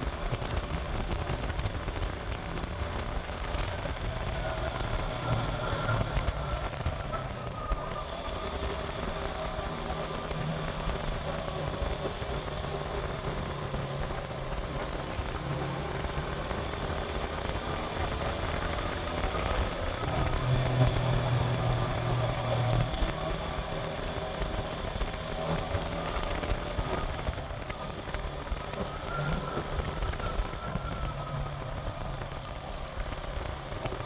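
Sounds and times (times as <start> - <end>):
motorcycle engine running: 0.0 - 34.0
wind rumbling on microphone: 0.0 - 34.0.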